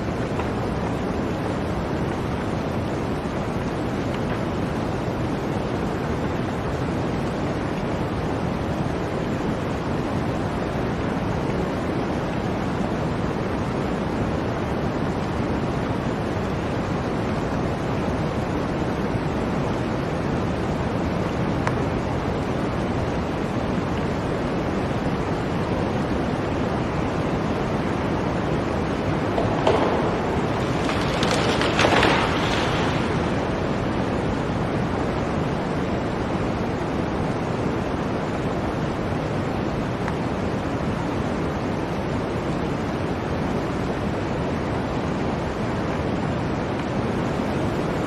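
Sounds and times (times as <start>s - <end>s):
blizzard wind rushing: 0.0s - 48.0s.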